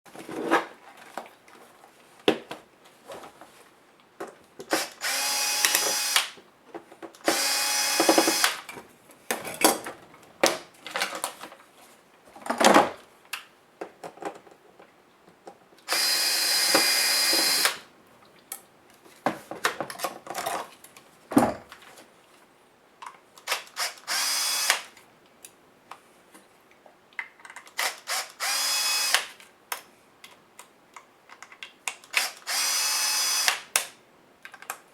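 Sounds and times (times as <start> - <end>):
power screwdriver whirring: 4.7 - 6.3, 7.2 - 8.6, 15.9 - 17.8, 23.5 - 24.9, 27.8 - 29.3, 32.1 - 33.7
screws and plastic parts clicking: 7.1 - 8.6, 27.2 - 34.8.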